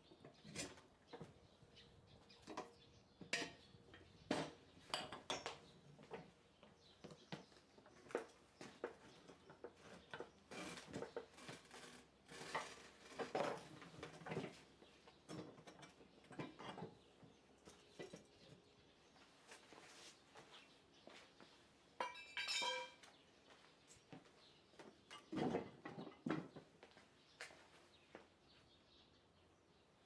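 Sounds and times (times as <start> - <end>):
metallic clinks and knocks of tools: 22.0 - 23.1.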